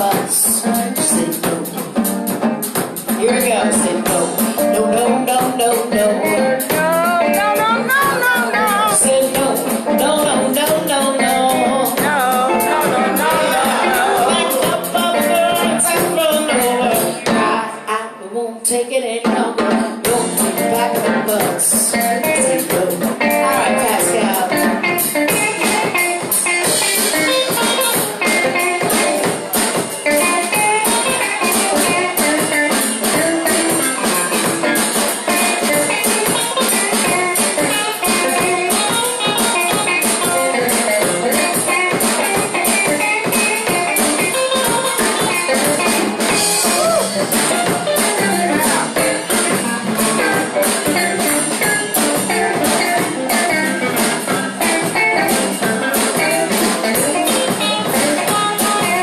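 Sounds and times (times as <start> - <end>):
drum kit steady beat: 0.0 - 17.9, 19.3 - 59.0
bass: 0.0 - 59.0
guitar: 0.0 - 59.0.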